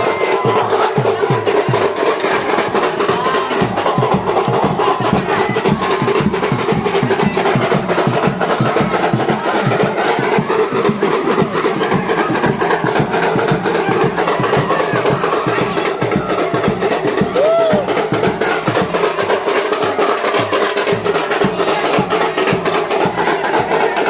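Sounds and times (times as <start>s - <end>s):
fast continuous drumming: 0.0s - 24.0s.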